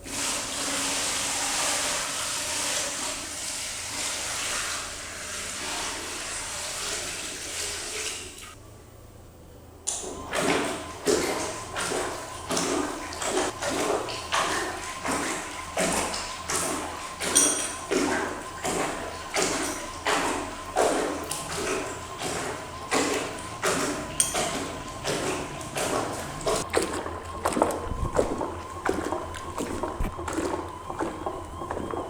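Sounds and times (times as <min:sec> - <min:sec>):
water sloshing in washing machine: 0:00.0 - 0:08.6, 0:09.9 - 0:32.0
faint motor whine: 0:08.4 - 0:32.0.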